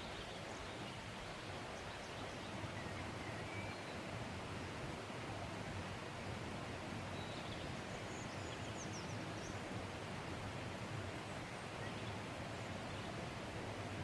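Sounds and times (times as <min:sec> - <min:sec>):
faint bird chirps: 0:01.8 - 0:04.1.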